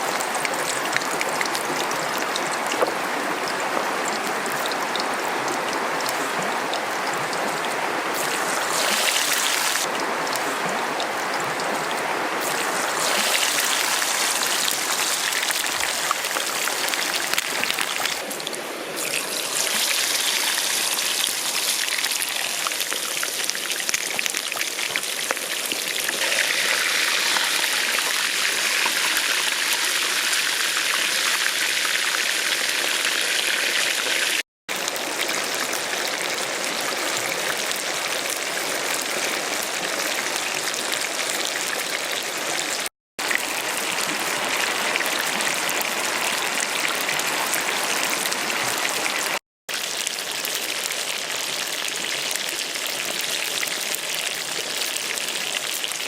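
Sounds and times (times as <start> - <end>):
chicken sizzling in hot oil: 6.0 - 11.8, 12.4 - 18.3, 19.0 - 56.0.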